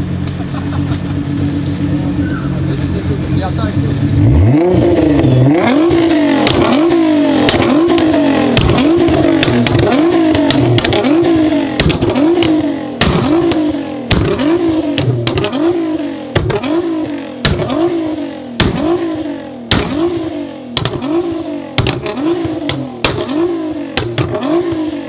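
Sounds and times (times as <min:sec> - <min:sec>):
car engine revving: 0:00.0 - 0:25.0
exhaust pops and cracks: 0:05.9 - 0:15.7, 0:16.3 - 0:16.8, 0:17.4 - 0:18.0, 0:18.6 - 0:24.9.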